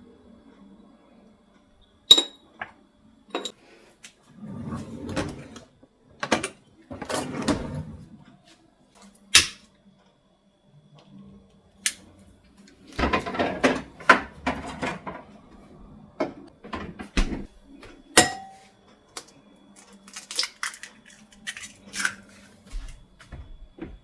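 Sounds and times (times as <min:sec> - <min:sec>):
clattering and rustling: 0:12.9 - 0:17.6.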